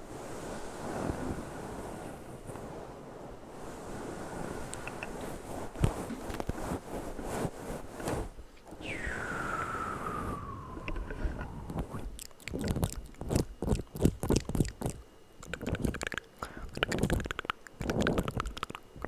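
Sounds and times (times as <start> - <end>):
sharp mouth clicks and pops: 10.8 - 19.0
wet mouth crackling and smacking: 10.8 - 19.0.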